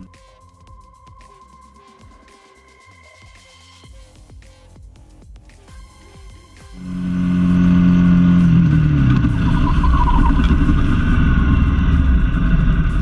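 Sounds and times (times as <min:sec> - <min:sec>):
vehicle engine rumbling: 0:06.8 - 0:13.0.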